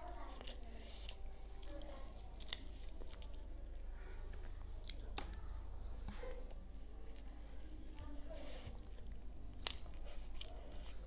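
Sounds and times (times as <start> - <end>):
person chewing bread: 0.0 - 5.4, 6.4 - 11.0.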